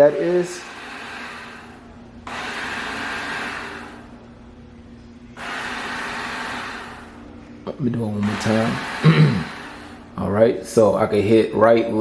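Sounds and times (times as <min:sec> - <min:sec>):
robot vacuum humming: 0:00.0 - 0:04.2, 0:05.4 - 0:07.3, 0:07.9 - 0:10.2.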